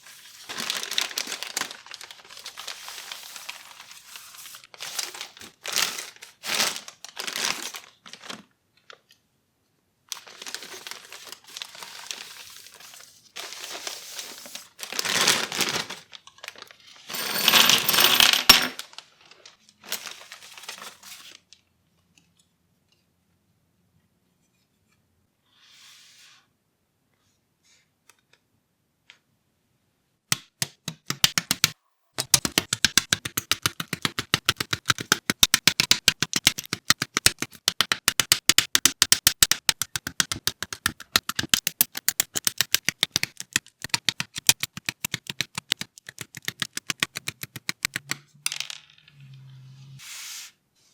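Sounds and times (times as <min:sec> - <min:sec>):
plastic packaging crinkling: 0:00.4 - 0:08.5, 0:10.1 - 0:16.7, 0:33.2 - 0:48.2.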